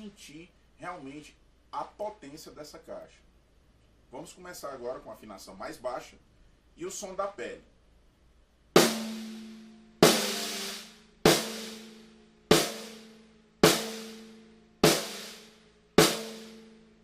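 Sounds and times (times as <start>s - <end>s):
snare drum strokes: 8.8s - 16.6s.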